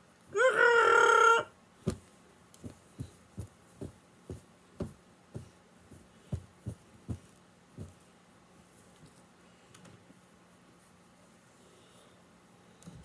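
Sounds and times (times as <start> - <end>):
faint steady hum: 0.0 - 13.0
drawn-out vocal cry: 0.3 - 1.5
soft low thuds: 1.9 - 8.0.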